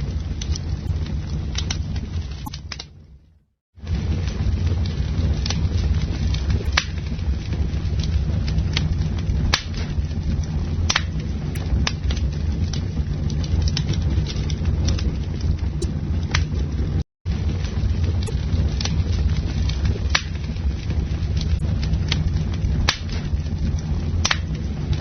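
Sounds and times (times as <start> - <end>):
burning wood crackling and popping: 0.0 - 3.0, 3.8 - 25.0
campfire flames roaring: 0.0 - 25.0.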